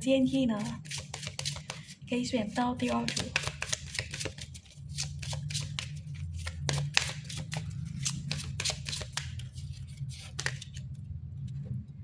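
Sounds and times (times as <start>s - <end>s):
cards being shuffled by hand: 0.6s - 2.0s, 2.8s - 10.9s.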